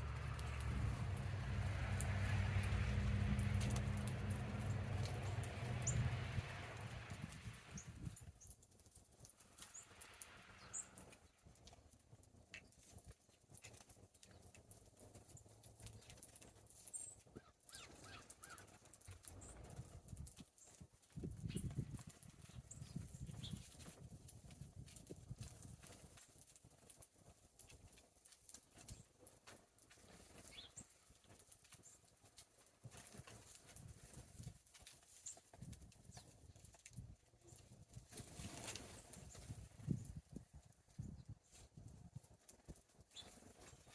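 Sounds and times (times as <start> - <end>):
small ticks and taps: 0.0 - 7.5
birds tapping and clicking: 0.0 - 40.2, 40.9 - 43.9.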